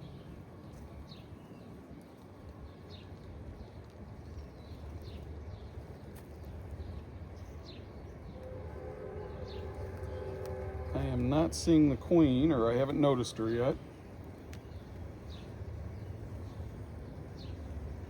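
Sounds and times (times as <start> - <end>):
steady low rumble: 0.0 - 18.0
bird chirping: 14.0 - 18.0.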